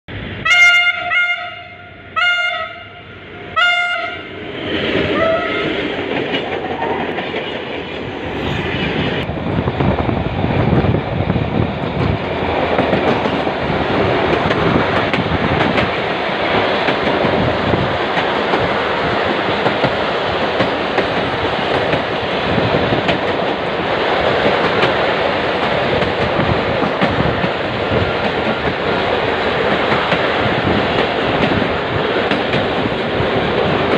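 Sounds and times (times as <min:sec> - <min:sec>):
locomotive horn blasts: 0:00.4 - 0:04.3, 0:05.2 - 0:05.7
train wheels clattering over rails: 0:04.6 - 0:08.1, 0:09.0 - 0:33.9.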